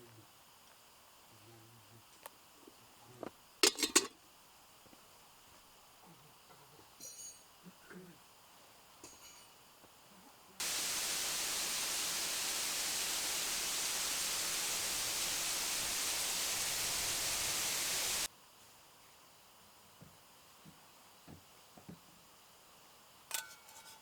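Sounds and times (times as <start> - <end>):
loud steady static hiss: 0.0 - 23.4.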